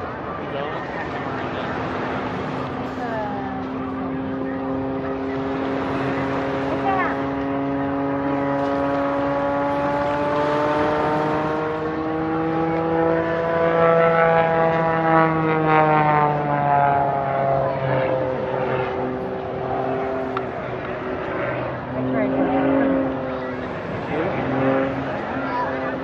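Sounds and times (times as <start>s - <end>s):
propeller plane engine overhead: 0.0s - 26.0s.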